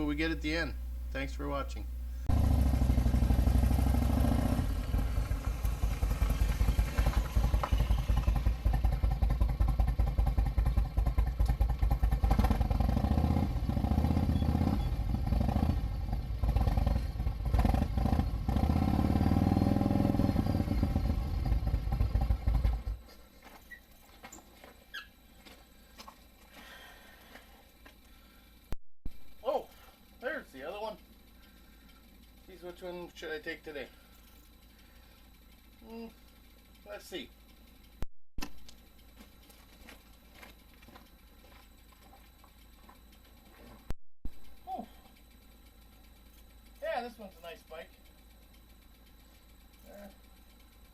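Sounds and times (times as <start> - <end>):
motorcycle engine running: 1.8 - 23.1, 33.9 - 38.0, 38.7 - 50.9.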